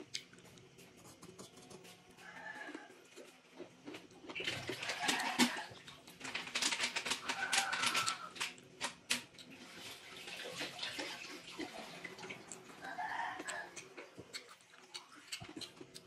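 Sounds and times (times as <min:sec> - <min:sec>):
wet chewing: 0:11.0 - 0:16.0.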